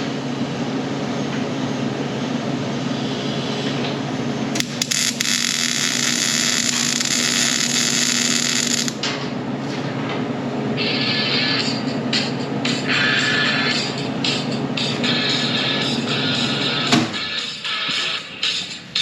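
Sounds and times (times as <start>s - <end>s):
steady background hum: 0.0s - 19.0s
welder crackling hiss: 4.6s - 9.0s.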